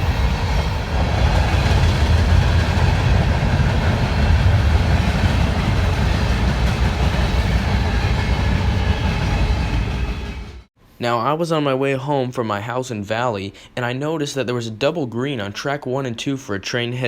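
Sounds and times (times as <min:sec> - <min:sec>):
freight train rolling past: 0:00.0 - 0:10.7.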